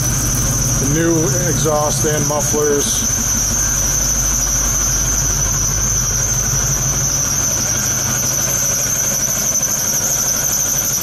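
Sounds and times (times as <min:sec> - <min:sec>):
high-pitched whine: 0:00.0 - 0:11.0.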